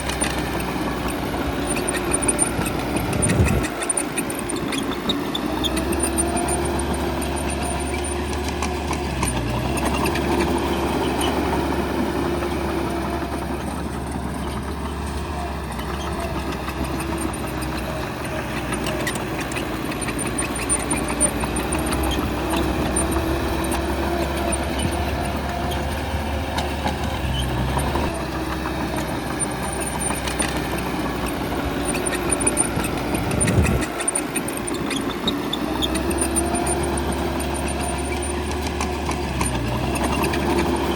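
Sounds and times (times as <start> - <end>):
bulldozer diesel engine working: 0.0 - 40.9.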